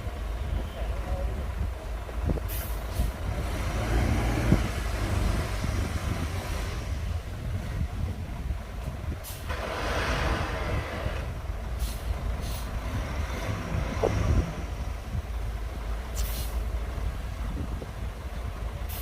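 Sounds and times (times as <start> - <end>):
diesel bulldozer rumble: 0.0 - 19.0
air brake hisses: 2.5 - 3.2, 9.2 - 9.6, 11.8 - 12.8, 16.2 - 16.6.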